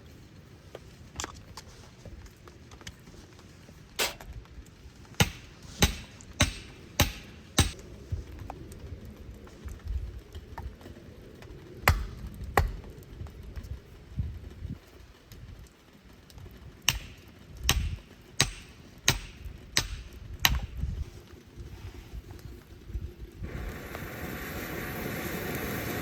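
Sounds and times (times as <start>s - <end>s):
sharp striking knocks: 5.2s - 7.8s, 16.9s - 20.7s.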